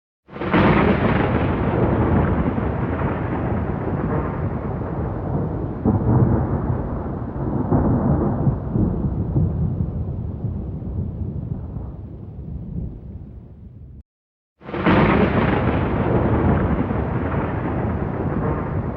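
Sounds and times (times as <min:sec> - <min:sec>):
thunder clap rumbling: 0:00.3 - 0:14.0, 0:14.6 - 0:18.9.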